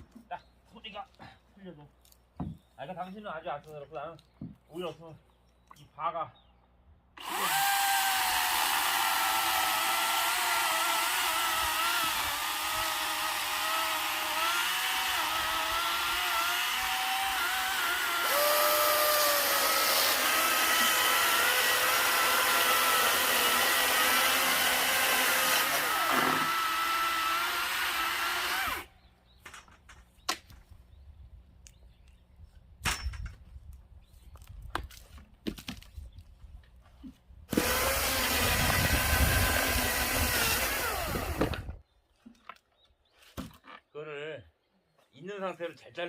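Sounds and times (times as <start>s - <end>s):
cordless chainsaw cutting wood: 7.2s - 28.9s, 37.5s - 41.8s.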